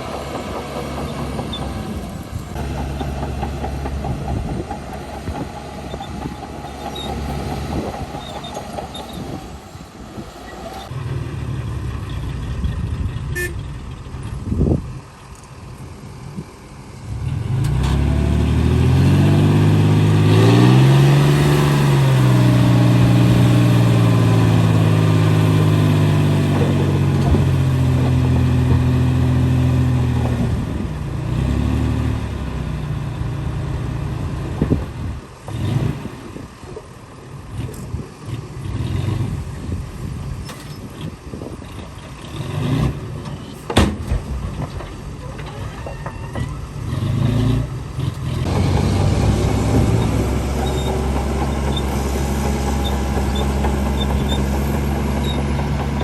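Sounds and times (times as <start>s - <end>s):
heavy diesel engine revving: 0.0s - 14.8s, 17.0s - 43.6s, 46.3s - 56.0s
metal clanks and knocks: 43.2s - 46.6s.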